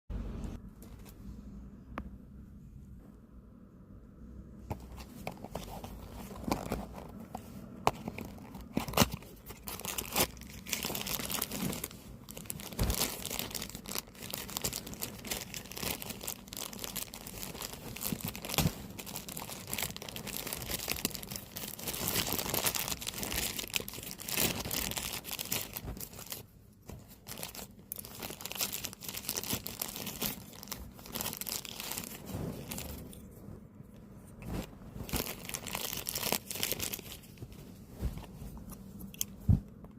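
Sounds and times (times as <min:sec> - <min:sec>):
packaging tearing and crinkling: 0:07.9 - 0:26.4, 0:27.1 - 0:33.0, 0:35.0 - 0:37.2.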